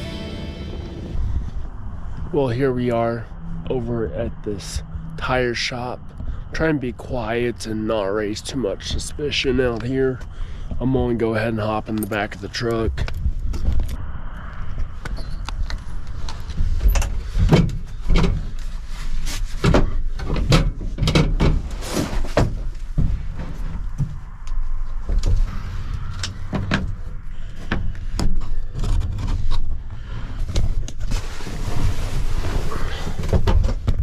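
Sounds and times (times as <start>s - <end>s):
steady low rumble: 0.0s - 34.0s
knocks and clunks: 16.7s - 18.6s, 19.6s - 24.2s, 26.2s - 27.0s, 33.1s - 34.0s.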